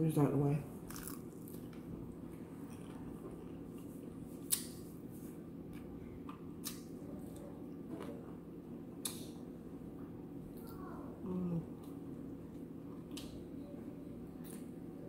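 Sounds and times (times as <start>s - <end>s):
low background hum: 0.0s - 15.0s
person chewing: 0.9s - 7.5s.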